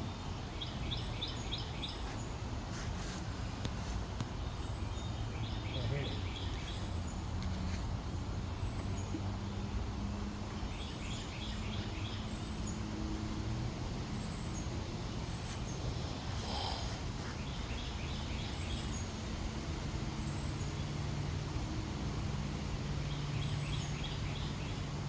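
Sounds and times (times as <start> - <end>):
outdoor background noise: 0.0 - 25.0
bird chirping: 14.1 - 19.3
bees buzzing: 14.6 - 20.1.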